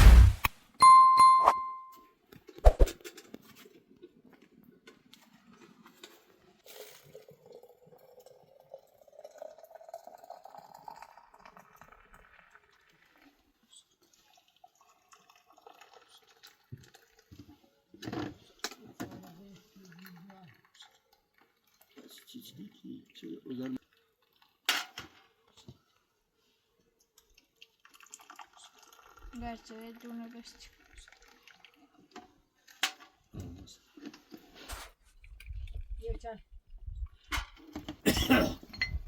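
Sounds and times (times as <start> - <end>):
liquid pouring into container: 6.6 - 18.5, 27.2 - 32.8.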